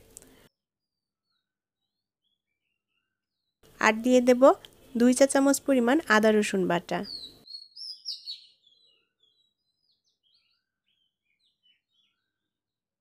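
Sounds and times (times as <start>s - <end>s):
small birds chirping: 6.1s - 12.8s.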